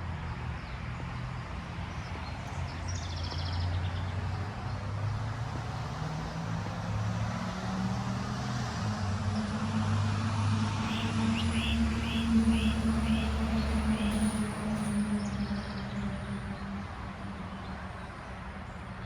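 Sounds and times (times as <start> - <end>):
bird chirping: 10.8 - 14.8.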